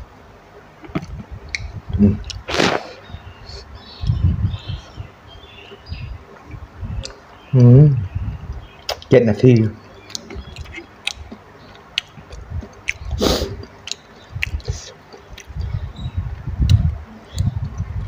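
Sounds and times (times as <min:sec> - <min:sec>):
person chewing: 0:00.8 - 0:03.1, 0:10.0 - 0:15.8
brief hiss: 0:02.5 - 0:03.0
wet mouth clicks and smacks: 0:08.8 - 0:09.1, 0:10.1 - 0:15.7.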